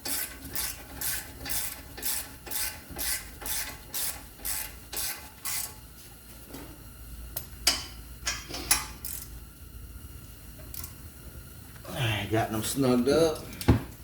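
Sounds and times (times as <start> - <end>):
ratchet wrench clicking: 8.7 - 9.3.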